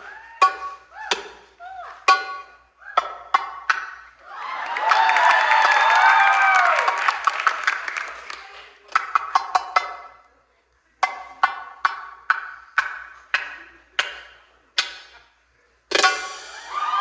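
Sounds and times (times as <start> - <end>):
struck percussion notes: 0.0 - 4.2, 8.9 - 10.3, 11.0 - 17.0.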